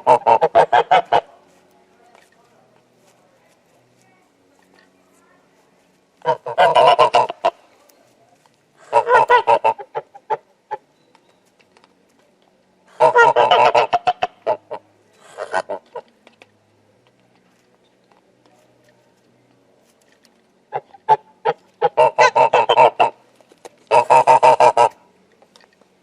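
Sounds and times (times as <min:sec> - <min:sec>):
goose honking: 0:00.0 - 0:01.3, 0:06.2 - 0:07.6, 0:08.8 - 0:10.9, 0:13.0 - 0:16.1, 0:20.7 - 0:23.2, 0:23.9 - 0:25.0.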